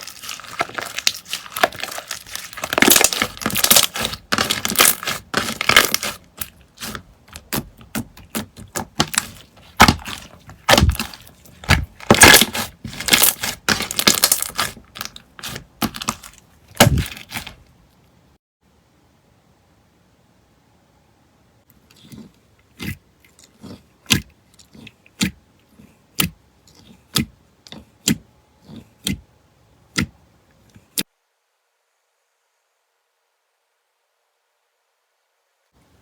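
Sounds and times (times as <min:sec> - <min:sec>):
slime crackling and popping: 0:00.0 - 0:17.6.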